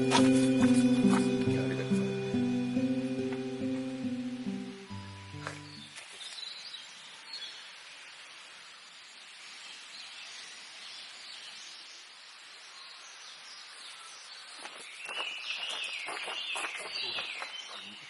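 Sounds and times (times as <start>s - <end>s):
steady hiss-like background: 0.0s - 16.5s
faint bird chirps: 4.9s - 18.0s.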